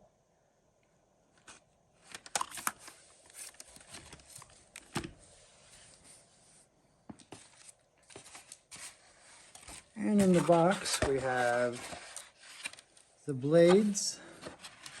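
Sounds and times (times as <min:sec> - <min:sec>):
packaging rustling and crinkling: 0:01.4 - 0:05.1, 0:07.2 - 0:15.0.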